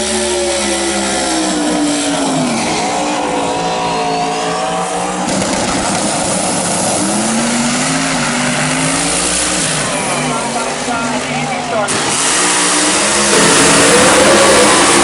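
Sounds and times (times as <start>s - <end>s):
racing engines revving: 0.0s - 15.0s.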